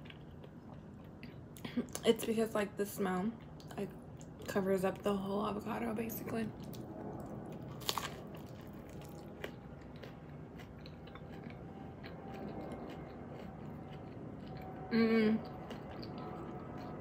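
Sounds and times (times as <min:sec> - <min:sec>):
chewing with crackles: 0:00.0 - 0:02.0, 0:03.3 - 0:05.3, 0:06.5 - 0:17.0
crunchy taco shell bite: 0:07.7 - 0:14.7.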